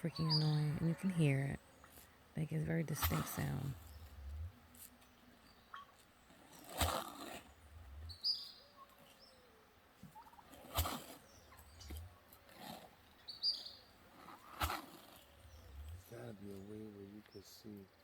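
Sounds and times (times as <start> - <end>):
turkeys gobbling: 0.1 - 13.3.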